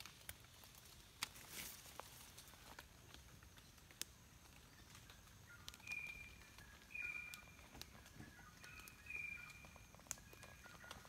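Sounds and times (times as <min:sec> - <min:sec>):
high whistled bird calls: 0:04.6 - 0:11.0.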